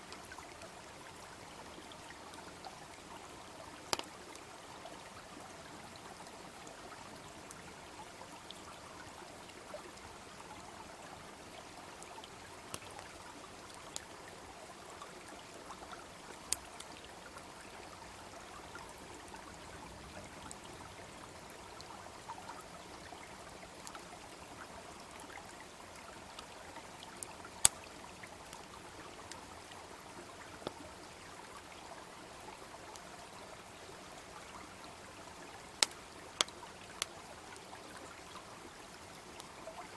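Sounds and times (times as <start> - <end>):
brook babbling: 0.0 - 39.9
bonfire crackling and popping: 3.9 - 4.1, 12.7 - 13.1, 27.2 - 28.2, 35.8 - 37.1.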